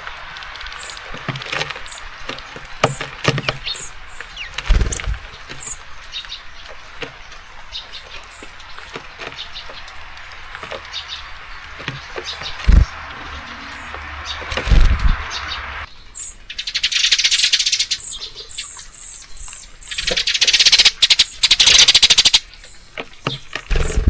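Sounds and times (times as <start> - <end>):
birds pecking and landing: 0.0 - 24.0
rain hiss: 0.0 - 24.0
songbirds chirping: 0.0 - 24.0
low thumps: 4.6 - 5.4, 9.7 - 15.9.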